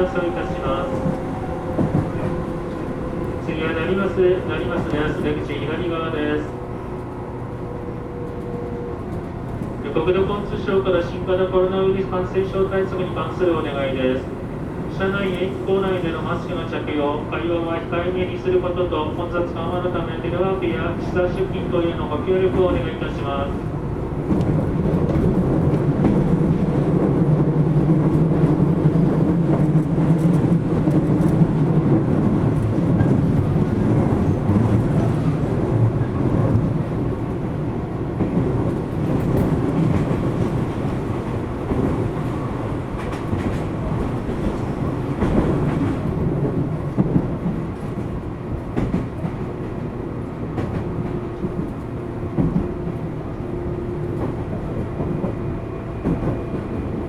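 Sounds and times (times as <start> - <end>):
wheels rolling on rail: 0.0 - 5.9
clacks over rail joints: 38.2 - 49.8.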